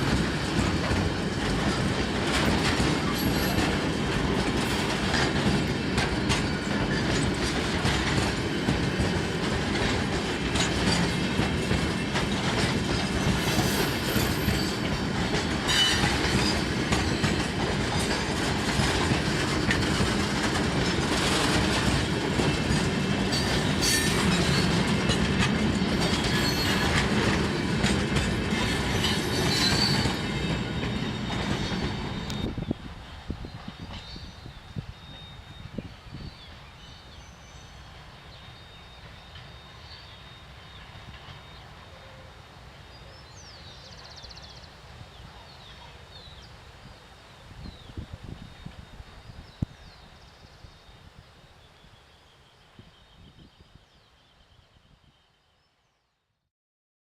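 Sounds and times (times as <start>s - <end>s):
train wheels clattering over rails: 0.0s - 42.2s
wheel squeal: 3.1s - 3.8s, 13.4s - 17.5s, 25.8s - 27.1s, 28.9s - 32.5s.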